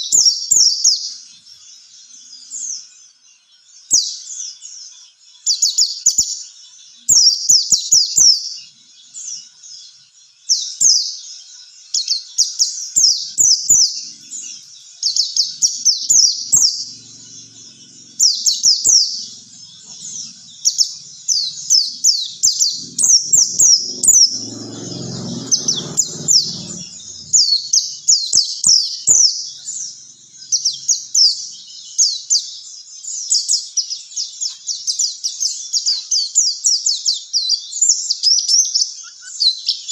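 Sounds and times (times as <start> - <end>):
bird twittering: 12.6 - 32.5.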